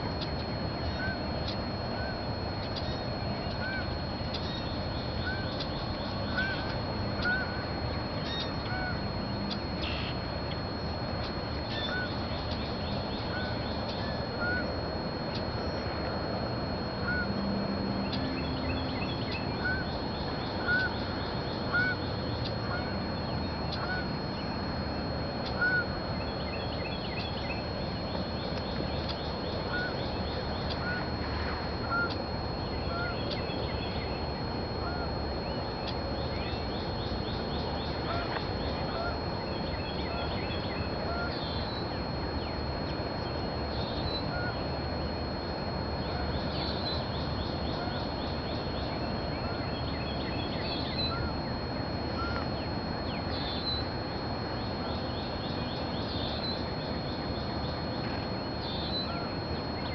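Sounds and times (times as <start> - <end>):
thin high whine: 0.0 - 59.9
birds calling: 18.0 - 24.1, 35.8 - 41.8.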